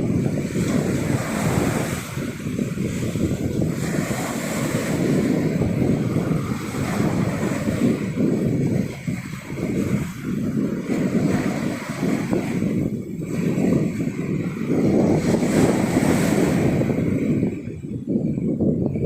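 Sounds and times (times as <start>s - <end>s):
sea surf washing on beach: 0.0s - 19.0s
wind gusting against microphone: 0.0s - 19.0s.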